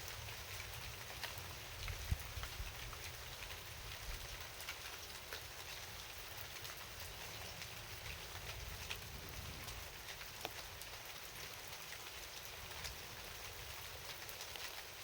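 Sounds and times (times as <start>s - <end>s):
rain falling: 0.0s - 15.0s
raindrops ticking: 0.0s - 15.0s.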